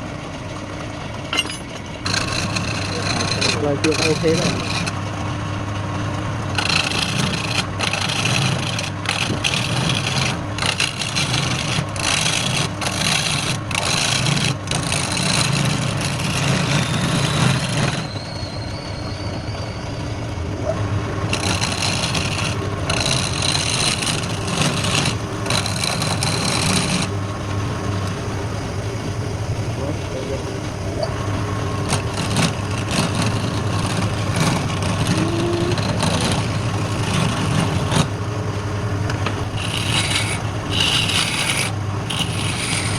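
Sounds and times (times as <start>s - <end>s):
lathe motor humming: 0.0s - 18.1s, 20.1s - 42.9s
tool scraping spinning wood: 1.2s - 5.5s, 6.4s - 18.8s, 21.2s - 28.8s, 31.3s - 42.9s.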